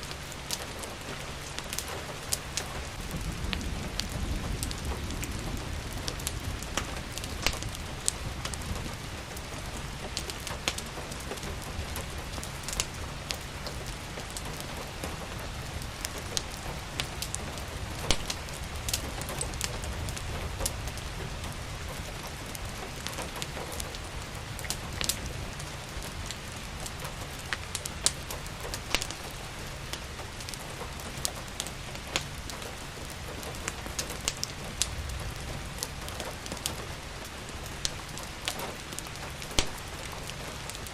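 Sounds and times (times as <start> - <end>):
rain hissing: 0.0 - 40.9
wood fire crackling: 0.0 - 40.9.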